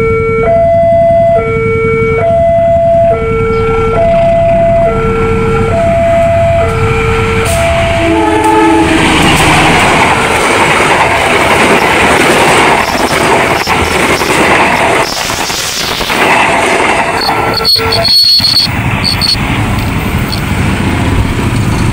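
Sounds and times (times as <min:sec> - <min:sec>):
level-crossing warning alarm: 0:00.0 - 0:19.6
train passing with wheel noise: 0:00.6 - 0:21.9
train horn blast: 0:03.6 - 0:09.3, 0:17.2 - 0:18.4.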